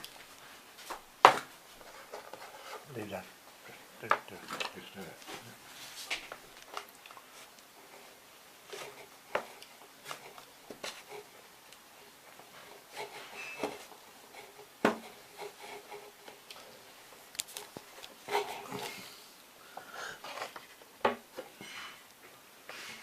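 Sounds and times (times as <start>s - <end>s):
clicks and taps of wooden parts: 17.2s - 18.5s.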